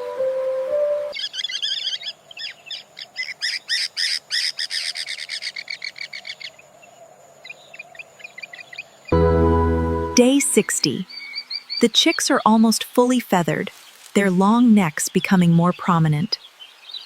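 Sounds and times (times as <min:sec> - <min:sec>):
bird chirping: 0:00.8 - 0:09.2, 0:10.1 - 0:12.6.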